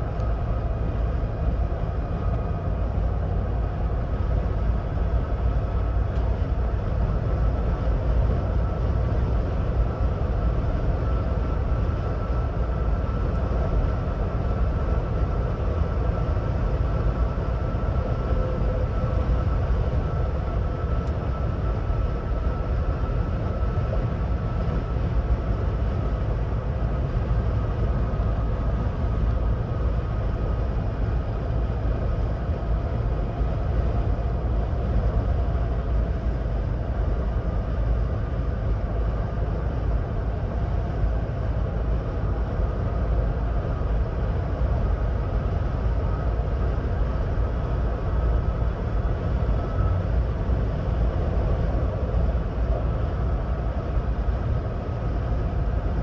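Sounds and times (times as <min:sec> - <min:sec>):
faint steady whine: 0:00.0 - 0:56.0
low rumble: 0:00.0 - 0:56.0
road and tyre noise: 0:00.0 - 0:56.0.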